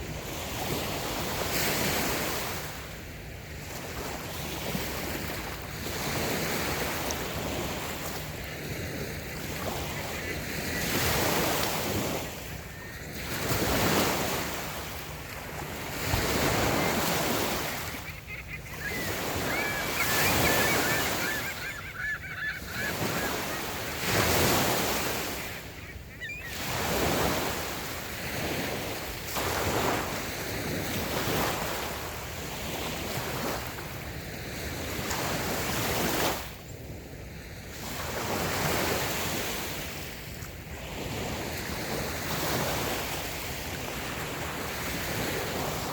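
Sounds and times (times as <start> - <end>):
waves washing on sandy beach: 0.0 - 45.9
bird calling: 8.6 - 14.3, 16.1 - 28.0.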